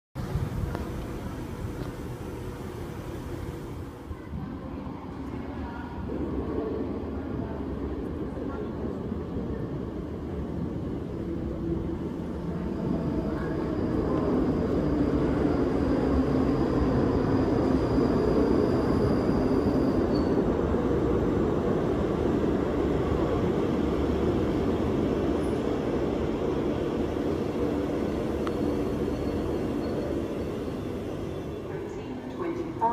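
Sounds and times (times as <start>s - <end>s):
train wheels rumbling on rails: 0.2s - 32.9s
faint high whine: 12.4s - 20.6s.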